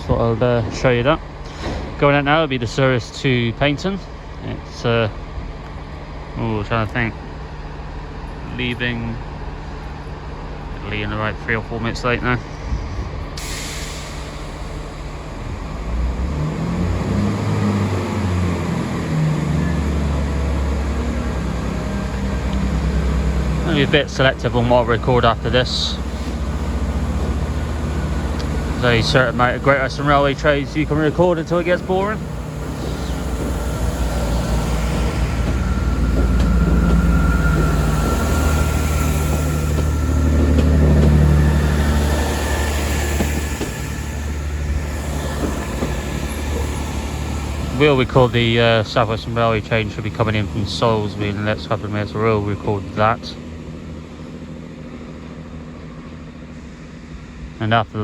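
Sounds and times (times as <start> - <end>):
diesel train engine accelerating: 0.0 - 58.0.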